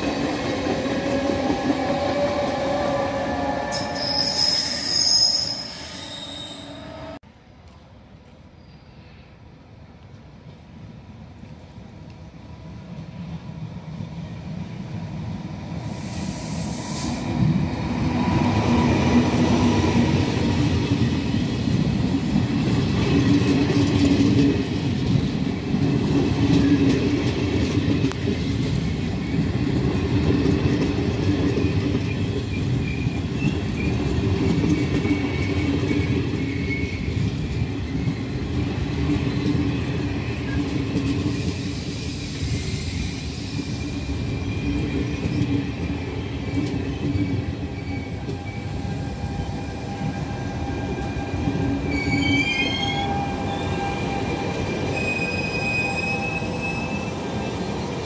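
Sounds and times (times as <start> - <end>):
train wheels rumbling on rails: 0.0 - 8.4, 10.0 - 58.0
faint high wheel squeals: 3.7 - 7.2, 51.9 - 57.7.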